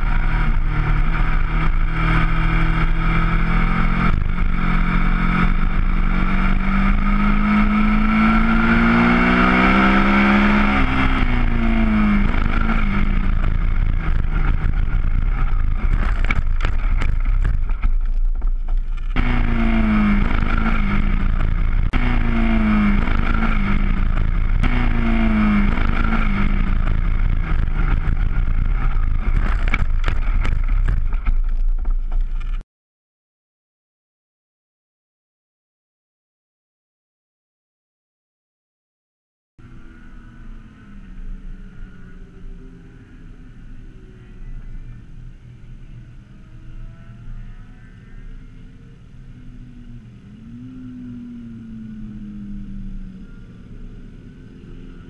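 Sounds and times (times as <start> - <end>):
motorcycle engine revving: 0.0 - 32.6, 39.6 - 55.0.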